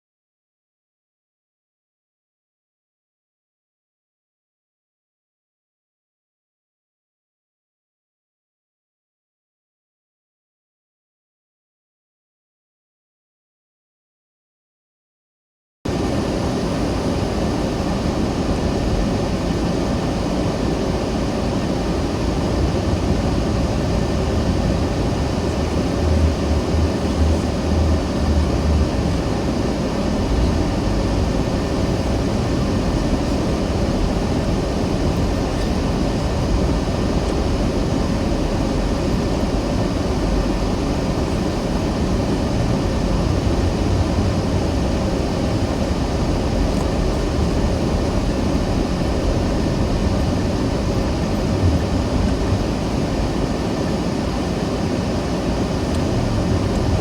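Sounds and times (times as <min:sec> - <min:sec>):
car road and engine noise: 0:15.9 - 0:57.0
low rumble: 0:22.3 - 0:53.6, 0:55.9 - 0:57.0.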